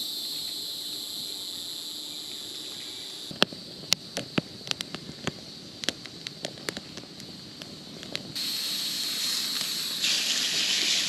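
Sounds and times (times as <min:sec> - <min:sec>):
cicadas droning: 0:00.0 - 0:11.0
campfire crackling and popping: 0:03.3 - 0:11.0
steak sizzling: 0:08.4 - 0:11.0.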